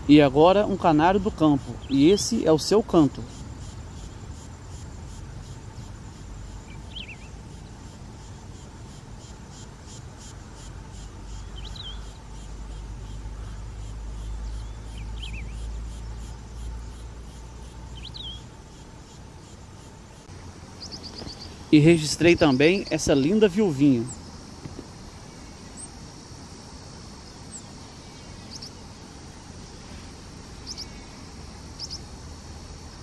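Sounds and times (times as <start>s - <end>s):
insects chirring: 0.0s - 33.0s
bird singing high chirps: 1.5s - 2.5s, 6.6s - 7.8s, 11.4s - 12.2s, 14.3s - 16.4s, 17.9s - 18.5s, 20.8s - 23.4s, 27.5s - 28.8s, 30.6s - 31.1s, 31.8s - 32.1s.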